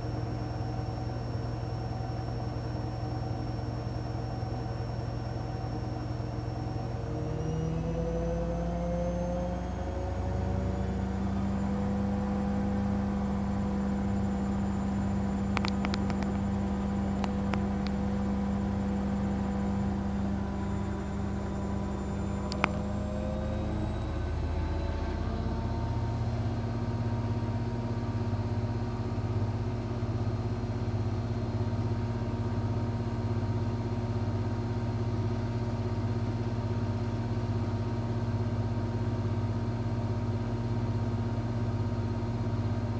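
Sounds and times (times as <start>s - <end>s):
sharp click: 15.5s - 16.4s
light clicks: 15.5s - 18.0s.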